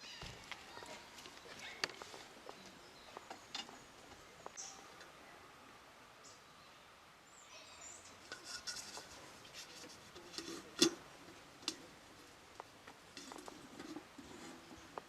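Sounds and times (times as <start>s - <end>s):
light clicks and rustling: 0.4s - 5.1s.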